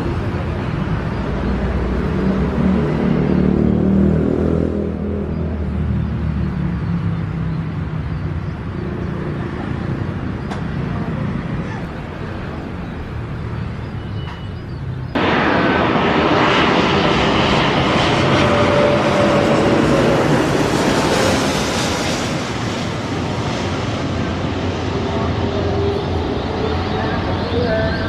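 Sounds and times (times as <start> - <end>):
broad rushing roar: 0.0 - 8.0, 15.1 - 28.0
jet engines rumbling: 0.0 - 28.0.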